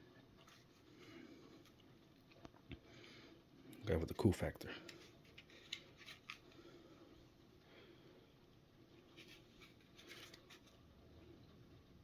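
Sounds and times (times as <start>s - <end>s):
faint handling clicks and rustles: 0.2s - 3.9s, 4.6s - 7.3s, 8.9s - 10.8s.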